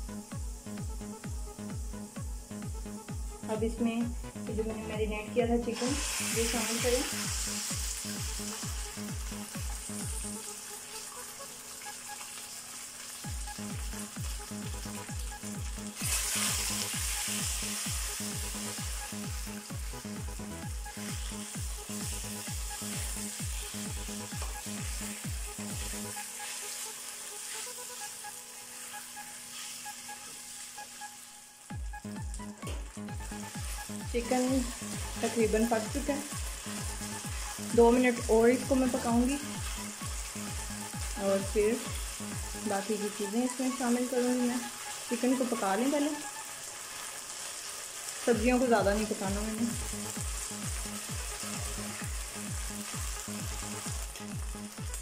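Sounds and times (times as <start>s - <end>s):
background music with low beat: 0.0s - 12.4s, 13.0s - 46.4s, 48.3s - 55.0s
chicken sizzling in hot oil: 0.0s - 55.0s
spatula stirring in wok: 20.9s - 30.7s.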